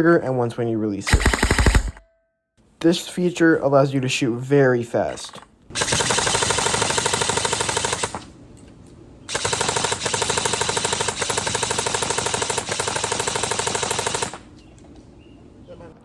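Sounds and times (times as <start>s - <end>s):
airsoft gun rapid firing: 1.1s - 2.0s, 5.3s - 8.3s, 9.3s - 14.5s.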